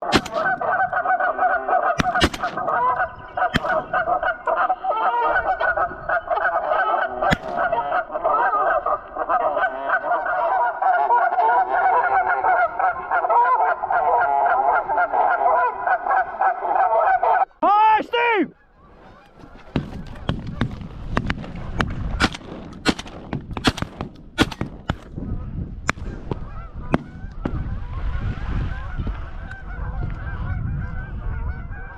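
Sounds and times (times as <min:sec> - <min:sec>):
geese honking: 0:00.0 - 0:23.0, 0:24.4 - 0:31.9.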